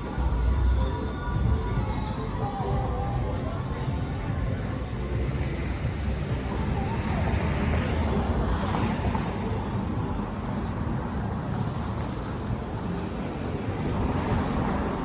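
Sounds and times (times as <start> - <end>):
road traffic rumbling: 0.0 - 15.0.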